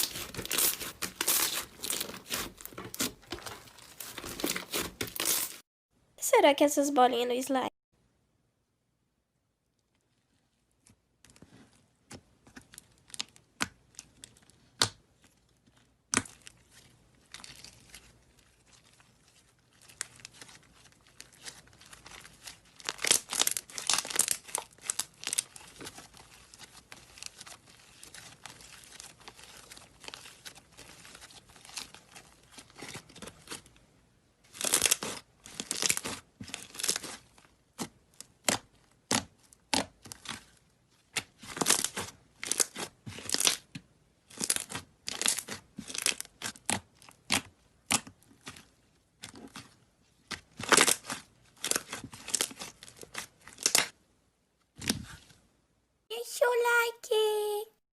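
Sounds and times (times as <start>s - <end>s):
slime crackling and popping: 0.0s - 5.6s, 15.7s - 33.6s, 34.5s - 54.0s.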